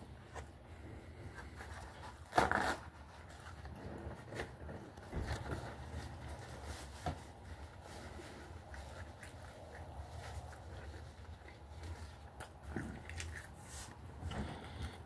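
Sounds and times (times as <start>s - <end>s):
low steady hum: 0.0s - 15.0s
man chewing: 7.8s - 15.0s.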